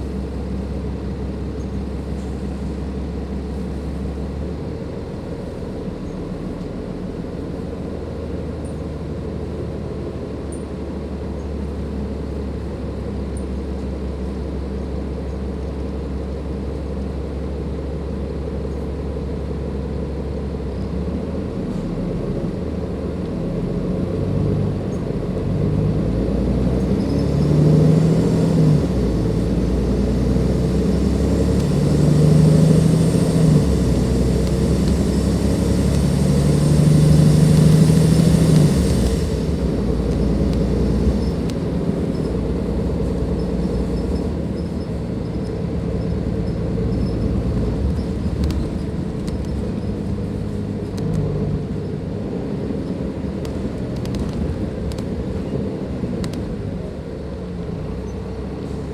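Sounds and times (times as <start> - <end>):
bus diesel engine revving: 19.8 - 58.9.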